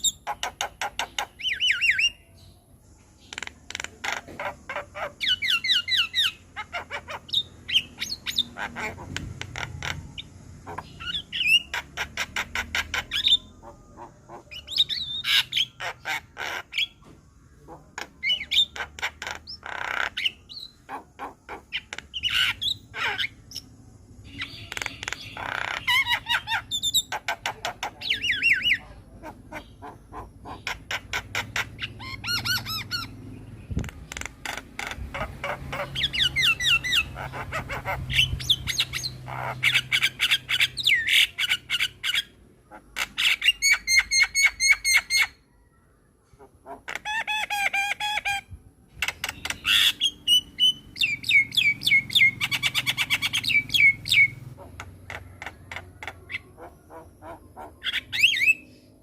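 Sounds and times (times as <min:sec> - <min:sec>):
bird chattering and whistling: 0:00.0 - 0:45.4, 0:46.3 - 0:59.0.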